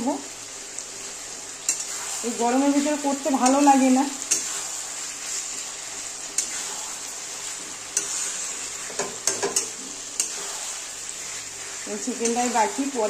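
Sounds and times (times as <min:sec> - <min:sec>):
chicken sizzling in a pan: 0:00.0 - 0:13.0
metal spatula scraping a pan: 0:06.2 - 0:12.8.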